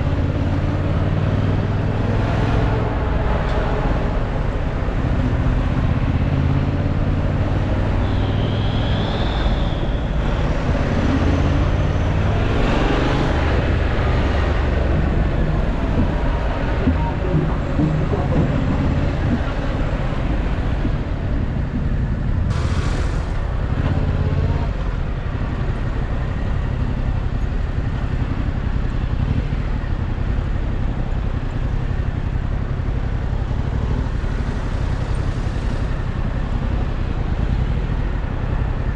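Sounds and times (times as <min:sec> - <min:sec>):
motorcycle engine rumble: 0:00.0 - 0:38.9
road and traffic noise: 0:00.0 - 0:38.9.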